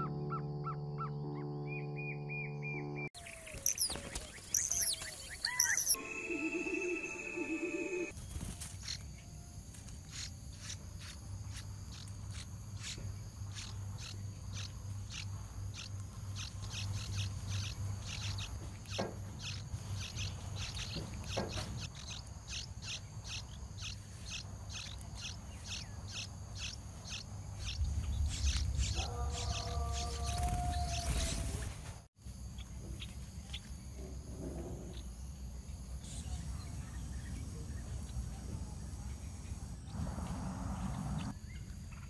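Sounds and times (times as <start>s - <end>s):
songbird alarm chips: 3.2s - 6.0s, 8.0s - 33.8s.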